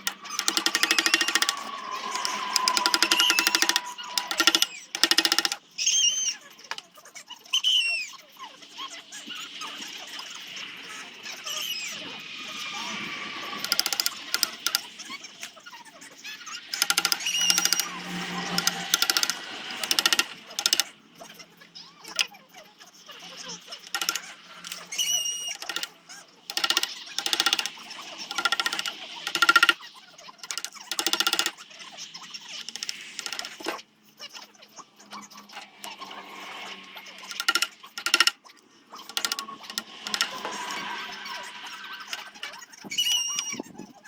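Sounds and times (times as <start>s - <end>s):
wood sanding rasps: 0.0s - 5.6s, 16.6s - 21.0s, 35.0s - 43.4s.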